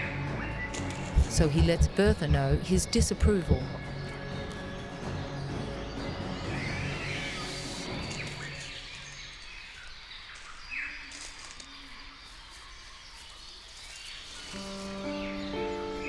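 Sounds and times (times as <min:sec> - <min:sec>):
steady music tones: 0:00.0 - 0:09.5
rainforest ambience: 0:00.0 - 0:16.0.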